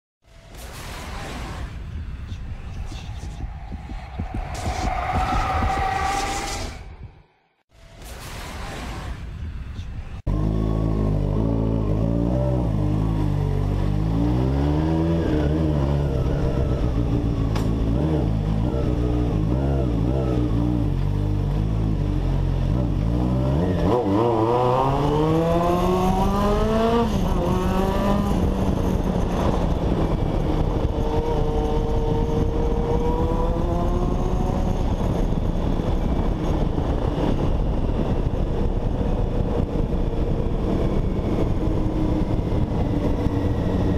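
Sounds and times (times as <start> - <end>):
motorcycle engine revving: 10.3 - 37.0.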